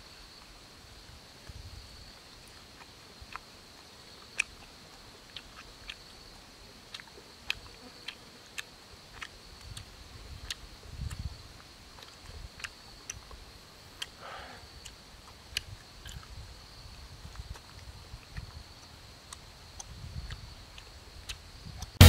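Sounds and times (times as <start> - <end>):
person chewing with mouth smacks: 2.4 - 3.5, 4.1 - 6.1, 6.9 - 11.3, 12.0 - 13.4, 14.8 - 16.4, 17.2 - 21.9.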